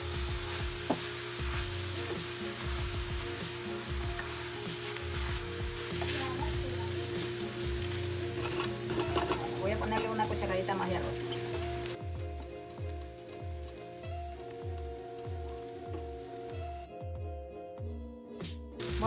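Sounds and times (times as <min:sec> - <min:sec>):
food sizzling in a pan: 0:00.0 - 0:16.9, 0:18.8 - 0:19.0
background music with bass line: 0:00.0 - 0:19.0
spatula stirring: 0:00.3 - 0:12.0.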